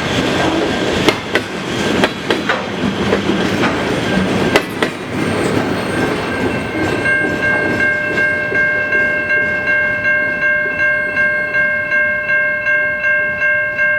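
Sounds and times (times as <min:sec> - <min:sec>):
freight cars rolling past: 0:00.0 - 0:10.0
pulsing high ringing bell: 0:06.0 - 0:13.9.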